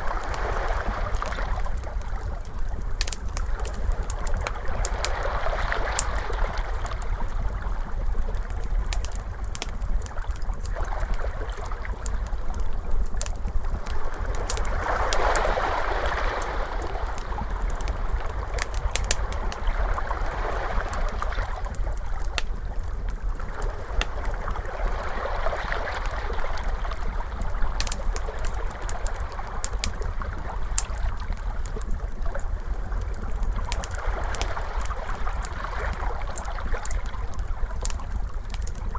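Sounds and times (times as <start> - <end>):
ocean waves washing in: 0.0 - 1.8, 14.1 - 21.7
wood fire crackling: 0.0 - 38.9.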